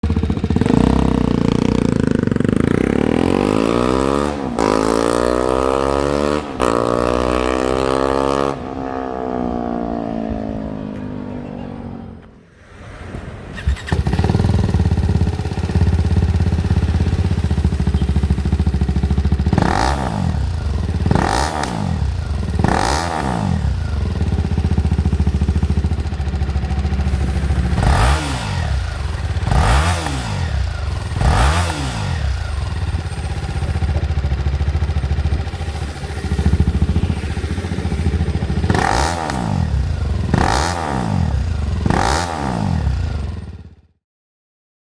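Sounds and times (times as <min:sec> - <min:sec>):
motorcycle engine idling: 0:00.0 - 0:04.2, 0:13.6 - 0:42.1
motorcycle engine revving: 0:00.0 - 0:12.3, 0:13.5 - 0:43.8.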